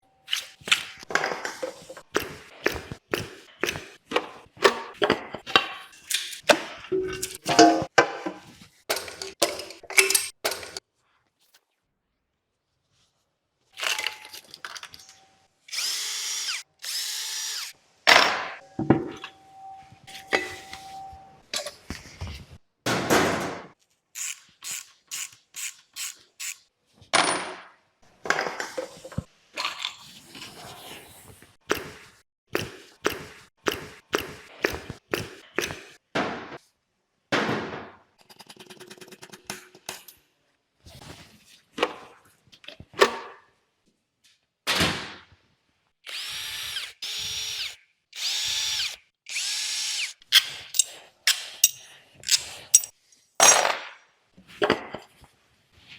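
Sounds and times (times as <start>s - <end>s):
metallic tool clicks and knocks: 50.7s - 52.9s.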